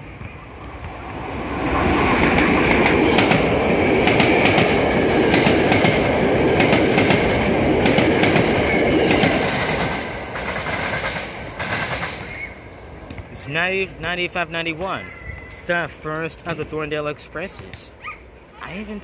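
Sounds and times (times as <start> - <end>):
train wheel-on-rail rush: 0.0 - 13.4.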